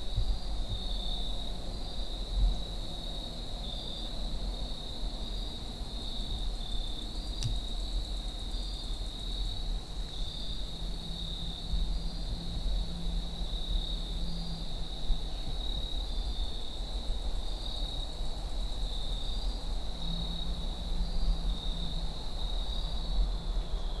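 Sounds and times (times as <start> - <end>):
wind rumble on microphone: 0.0 - 24.0
insects trilling: 0.1 - 24.0
sharp click: 7.4 - 7.6.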